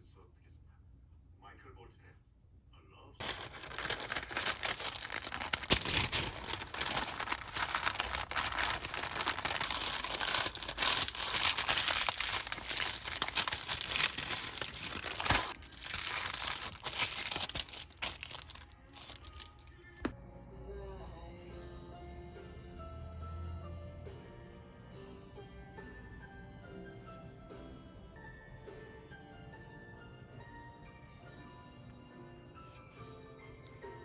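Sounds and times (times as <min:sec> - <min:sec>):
packaging crinkling and rustling: 0:03.2 - 0:19.7.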